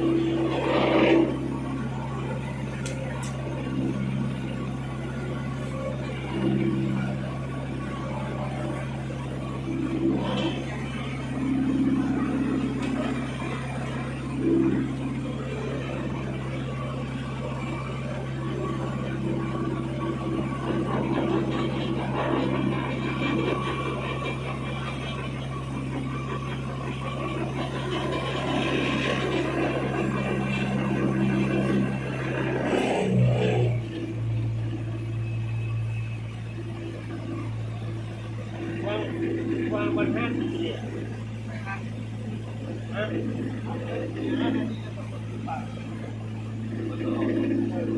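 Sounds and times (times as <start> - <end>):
boat engine humming: 0.0 - 47.9.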